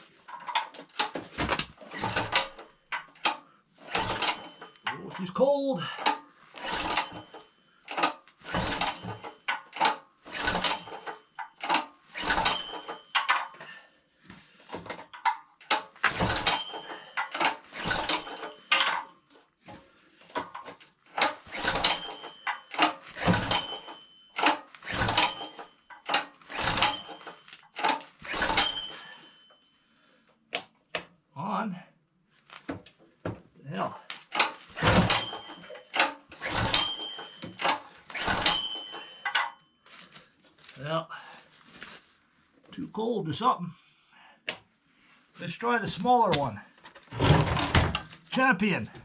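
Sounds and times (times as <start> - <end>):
generator recoil rope pulls: 0.4 - 29.4, 34.0 - 39.2.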